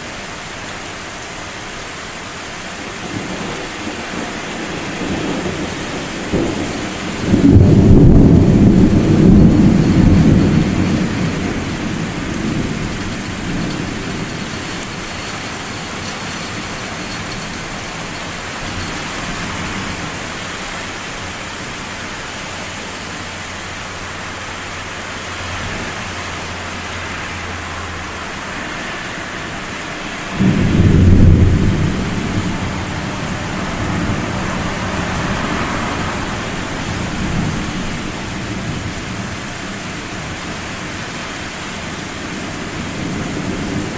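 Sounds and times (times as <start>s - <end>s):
steady rain: 0.0s - 43.9s
thunder rumbling: 2.7s - 43.9s
thunderclap: 3.0s - 20.7s, 29.0s - 40.6s.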